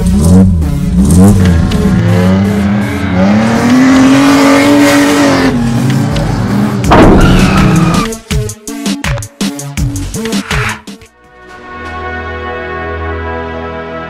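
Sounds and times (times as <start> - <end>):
cartoon race car engine revving: 0.0 - 8.1.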